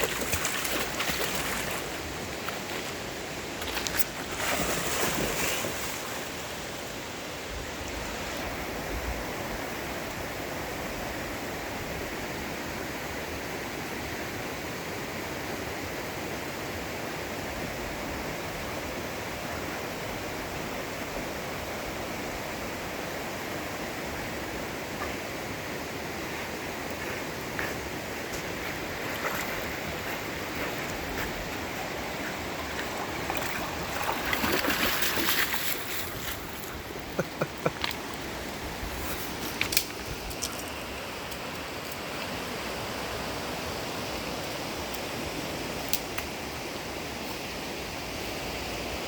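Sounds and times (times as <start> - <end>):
water rushing: 0.0 - 8.8, 23.8 - 47.9.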